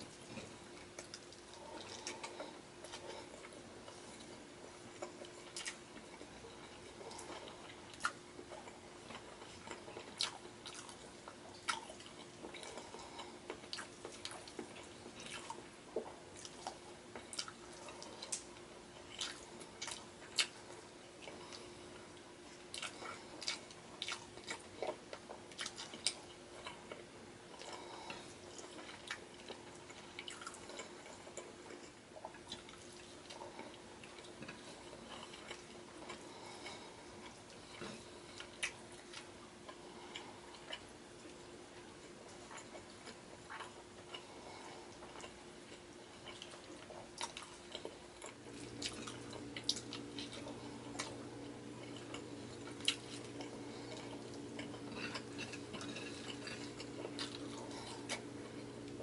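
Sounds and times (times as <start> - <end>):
wet chewing and lip-smacking: 0.0 - 59.0.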